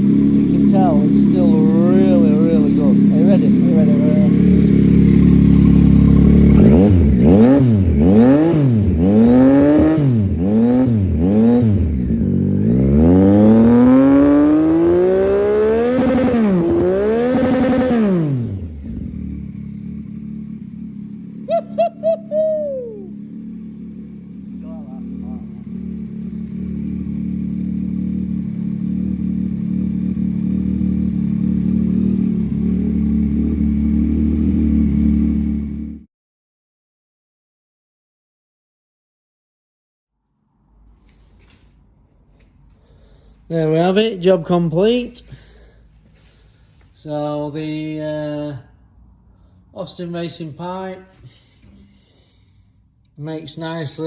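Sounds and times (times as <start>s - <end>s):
motorcycle engine revving: 0.0s - 36.1s.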